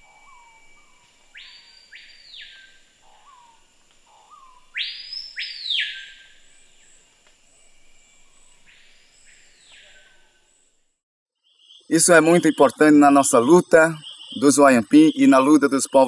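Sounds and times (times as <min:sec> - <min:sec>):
faint steady high tone: 0:00.0 - 0:11.0
harsh bird calls: 0:11.5 - 0:16.0.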